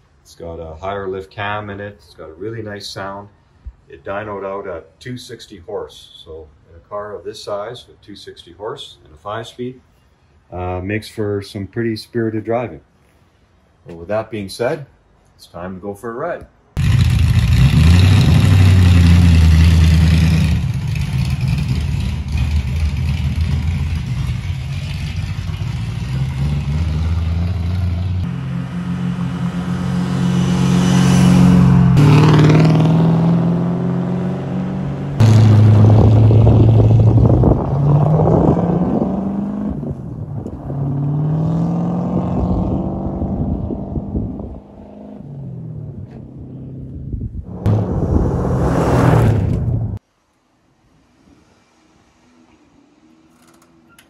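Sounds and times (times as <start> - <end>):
car engine revving and accelerating: 16.8 - 39.9, 40.5 - 46.8, 47.5 - 50.0.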